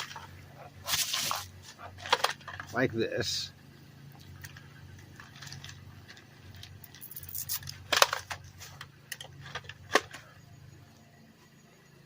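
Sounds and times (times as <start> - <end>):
plastic bag and bubble wrap crinkling: 0.0 - 2.7, 5.0 - 6.8.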